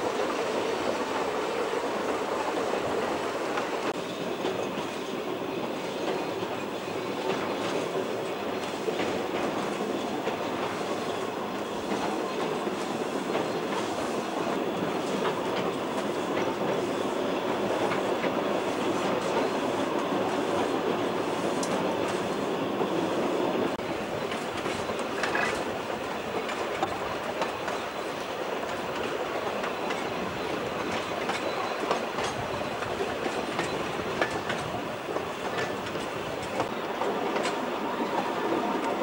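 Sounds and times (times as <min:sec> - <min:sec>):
train wheels rumbling on track: 0:00.0 - 0:39.0.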